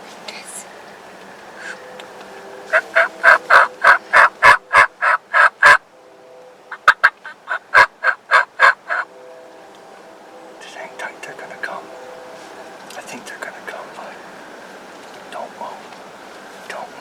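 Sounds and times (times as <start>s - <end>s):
wild turkey yelping: 1.6s - 5.8s, 6.7s - 9.1s.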